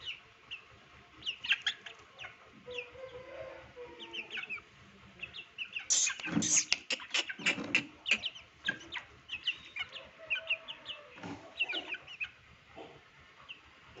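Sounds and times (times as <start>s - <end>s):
parrot chicks chirping: 0.0s - 4.6s, 5.2s - 12.4s
harsh parrot calls: 5.8s - 8.8s.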